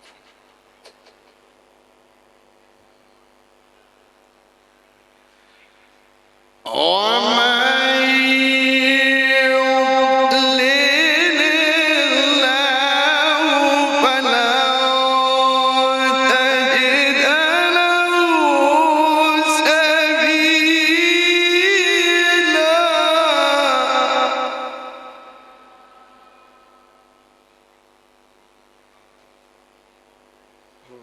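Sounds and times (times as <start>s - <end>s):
man reciting melodically: 6.7s - 25.8s.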